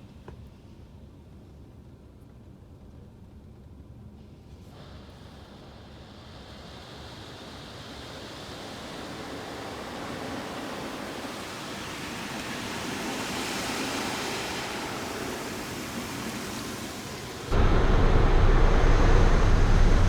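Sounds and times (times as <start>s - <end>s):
car wash water spray: 4.6s - 17.6s.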